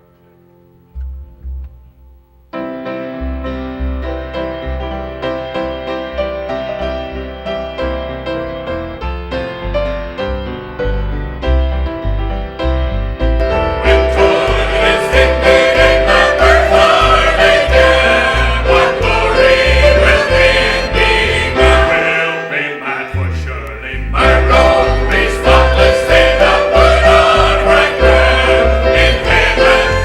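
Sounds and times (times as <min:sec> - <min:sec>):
gospel hymn on piano: 0:02.8 - 0:30.0
steady bass line: 0:07.2 - 0:30.0
group of voices singing: 0:13.8 - 0:30.0.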